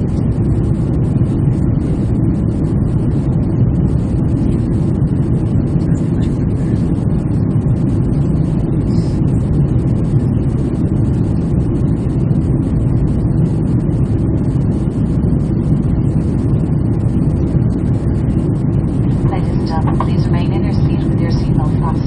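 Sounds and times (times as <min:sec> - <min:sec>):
jet engine cabin rumble: 0:00.0 - 0:22.0.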